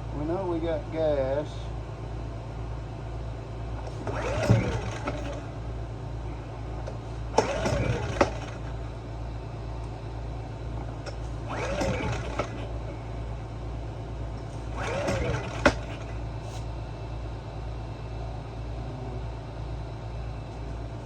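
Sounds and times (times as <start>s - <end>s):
steady low hum: 0.0s - 21.0s
generator recoil starter cranking: 3.8s - 5.7s, 6.8s - 9.0s, 10.7s - 13.0s, 14.3s - 16.3s.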